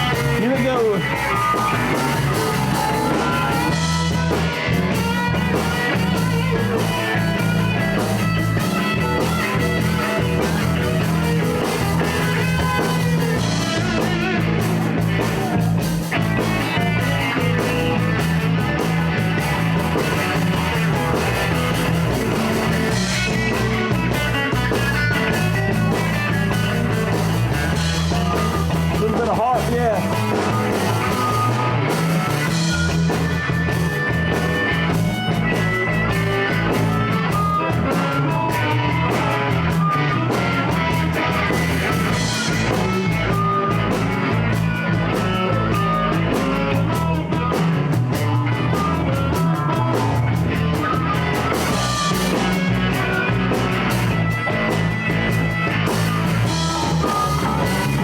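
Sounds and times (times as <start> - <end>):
bass and drums: 0.0 - 58.0
electric guitar: 0.0 - 58.0.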